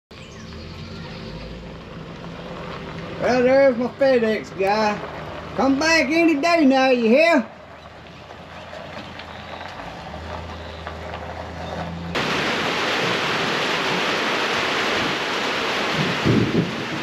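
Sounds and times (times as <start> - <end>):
truck engine hum: 0.1 - 17.0
heavy rain: 12.1 - 17.0.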